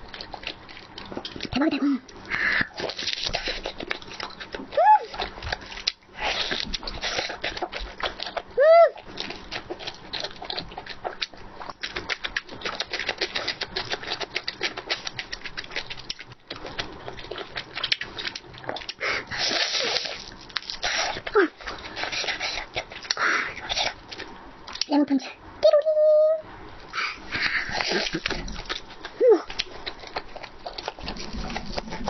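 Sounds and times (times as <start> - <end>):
chewing and wet mouth clicks: 9.1 - 24.9.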